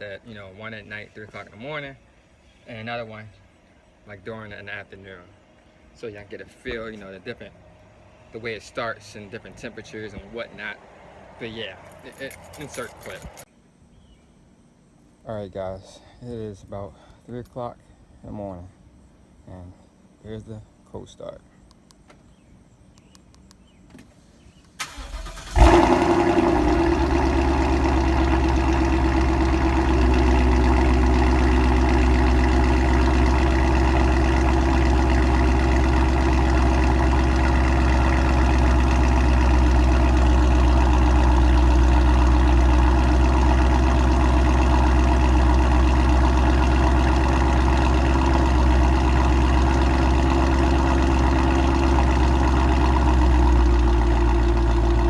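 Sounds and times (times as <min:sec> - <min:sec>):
car engine starting and idling: 0:24.5 - 0:55.0
car engine cranking: 0:24.8 - 0:55.0.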